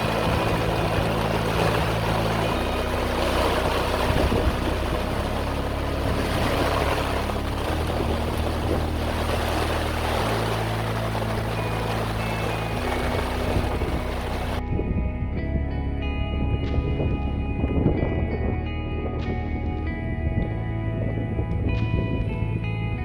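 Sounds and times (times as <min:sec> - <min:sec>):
water noise: 0:00.0 - 0:15.1
background music with bass: 0:00.0 - 0:23.0
motorboat running: 0:00.0 - 0:23.0
wind: 0:00.0 - 0:23.0.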